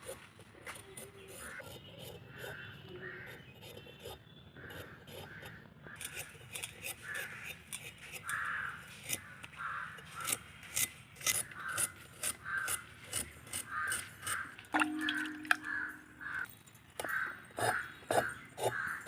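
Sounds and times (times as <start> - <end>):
crows cawing: 8.2 - 10.4, 11.5 - 12.9, 13.6 - 19.0.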